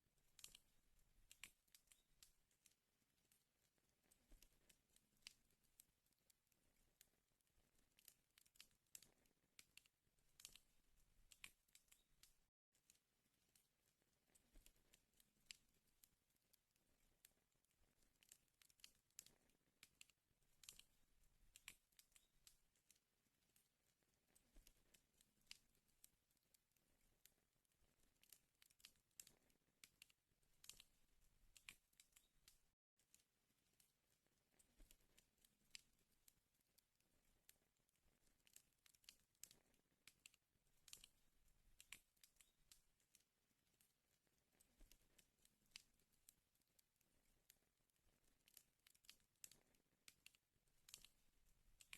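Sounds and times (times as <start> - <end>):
fire snaps and pops: 0.2 - 33.9, 34.5 - 43.9, 44.5 - 51.9
wood fire crackling: 7.6 - 12.4, 16.8 - 22.6.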